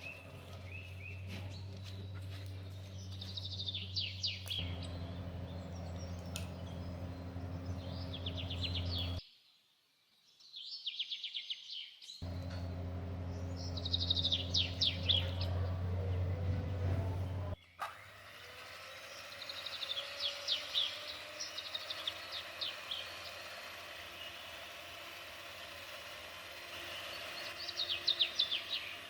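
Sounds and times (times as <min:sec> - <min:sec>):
steady low hum: 0:00.1 - 0:09.2, 0:12.2 - 0:17.6
songbird trilling: 0:03.0 - 0:09.2, 0:12.3 - 0:17.4.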